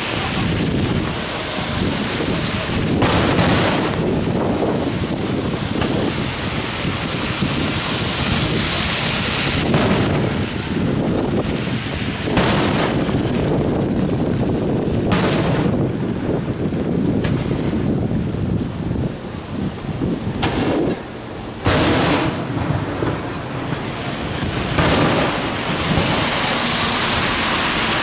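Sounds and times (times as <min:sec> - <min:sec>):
wind buffeting microphone: 0:00.0 - 0:28.0
firework shells booming: 0:00.2 - 0:07.2, 0:09.1 - 0:13.9, 0:14.9 - 0:16.3, 0:17.2 - 0:18.0, 0:20.4 - 0:28.0.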